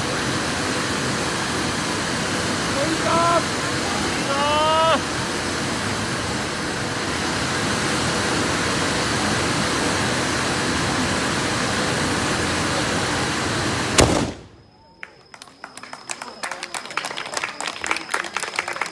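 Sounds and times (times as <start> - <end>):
firework spraying sparks hissing: 0.0 - 14.7
loud firework bang: 13.9 - 14.8.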